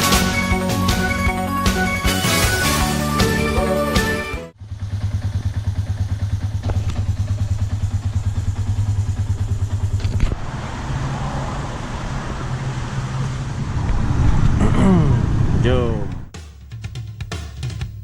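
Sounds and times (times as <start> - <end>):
motorcycle engine idling: 4.5 - 10.3.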